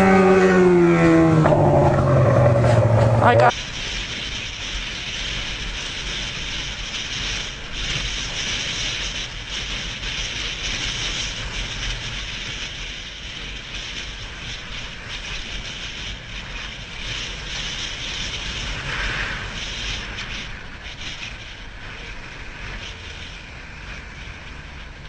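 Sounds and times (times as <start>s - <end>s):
motorcycle engine rumble: 0.0s - 3.5s
road noise: 0.0s - 4.3s, 18.6s - 25.0s
wind rushing over microphone: 0.0s - 25.0s.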